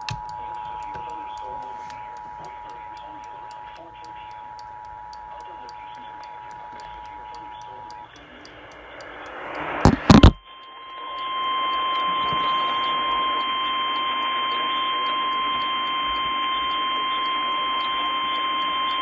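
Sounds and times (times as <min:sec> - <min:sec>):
sharp pops: 0:00.0 - 0:10.4
radio static hiss: 0:00.0 - 0:19.0
steady alarm tone: 0:00.0 - 0:19.0.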